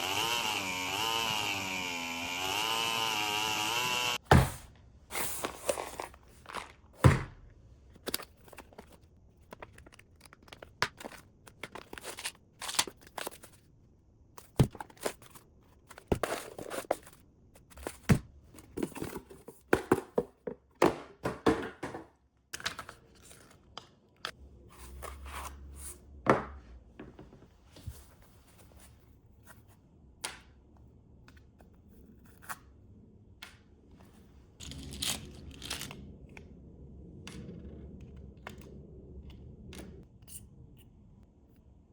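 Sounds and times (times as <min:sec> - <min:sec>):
small engine running: 0:00.0 - 0:04.2
small parts and packaging rustling: 0:04.1 - 0:07.1, 0:07.8 - 0:20.7, 0:21.3 - 0:26.0, 0:34.0 - 0:36.4.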